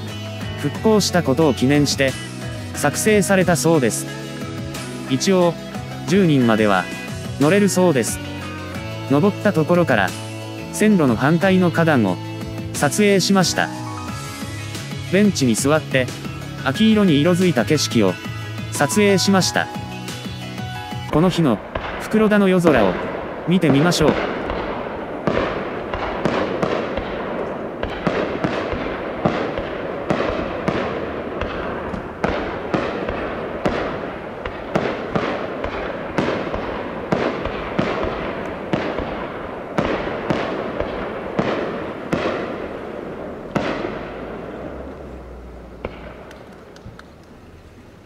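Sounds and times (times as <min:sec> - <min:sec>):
firework shells bursting: 0:21.2 - 0:47.6.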